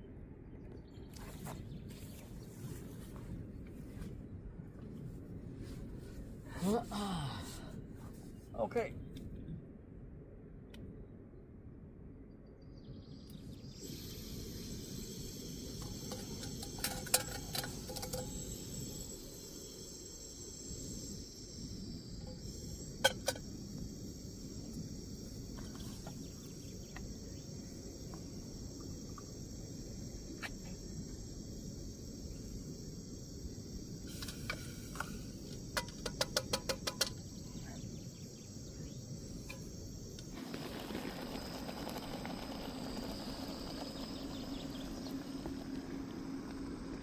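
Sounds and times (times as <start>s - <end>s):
insect chirring: 13.1s - 47.0s
steady hiss: 13.4s - 47.0s.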